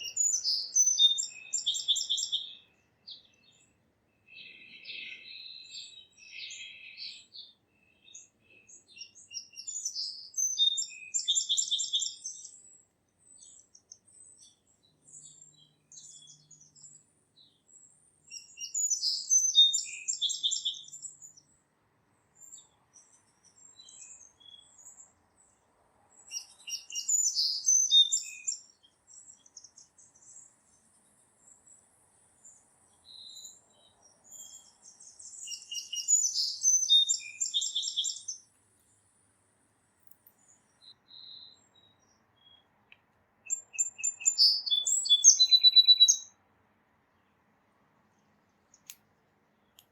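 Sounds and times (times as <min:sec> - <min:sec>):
short bird chirps: 0:00.0 - 0:17.6, 0:34.2 - 0:38.5, 0:40.2 - 0:42.7, 0:43.4 - 0:46.3
songbird singing rapid phrase: 0:00.0 - 0:21.6, 0:26.2 - 0:30.6, 0:32.9 - 0:38.5, 0:43.4 - 0:46.4.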